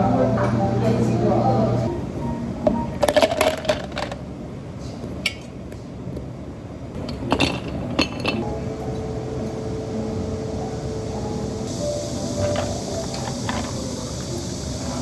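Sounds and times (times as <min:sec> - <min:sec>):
steady hum: 0:06.0 - 0:15.0
glassware and utensils clinking: 0:07.0 - 0:08.5, 0:12.4 - 0:15.0.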